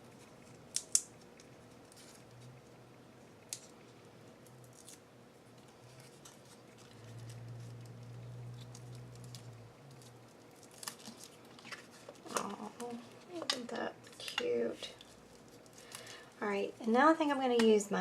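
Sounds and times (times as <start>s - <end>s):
faint low hum: 0.0s - 18.0s
handling craft materials: 5.6s - 16.6s.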